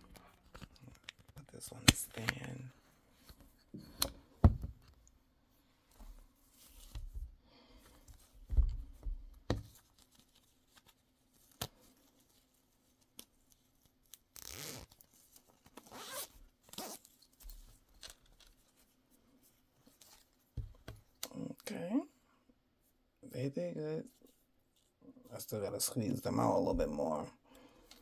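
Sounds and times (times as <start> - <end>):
handling knocks and thumps: 3.8 - 5.0, 8.4 - 9.8, 20.6 - 21.1
zipper of garment bag opening: 14.4 - 14.9, 15.8 - 17.1.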